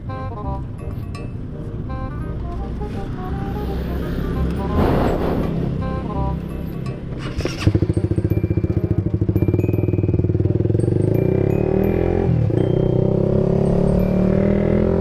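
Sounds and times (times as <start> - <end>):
motorcycle engine running: 4.8 - 15.0.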